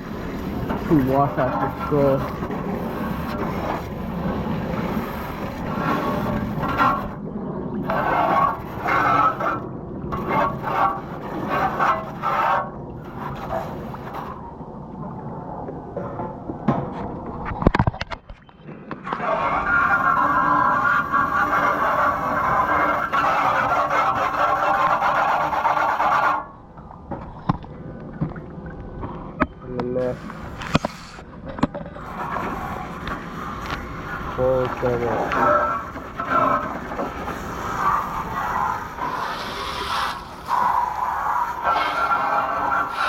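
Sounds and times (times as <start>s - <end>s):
hose spray hissing on coil fins: 0.1s - 7.2s, 19.6s - 26.4s, 32.0s - 43.0s.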